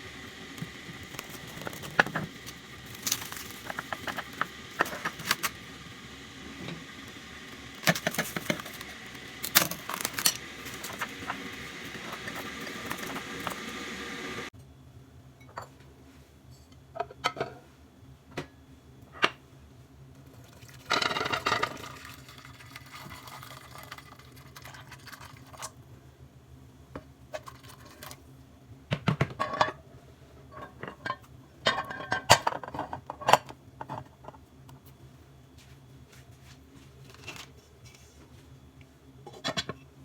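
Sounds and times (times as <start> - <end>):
dishes and utensils clinking: 30.5 - 33.4.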